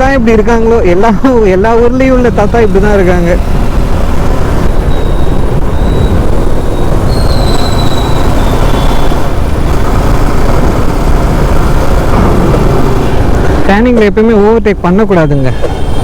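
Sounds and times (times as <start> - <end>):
wind rushing over microphone: 1.9 - 13.8
motorcycle engine running: 2.0 - 13.7
faint high whistle-like tone: 4.8 - 9.2.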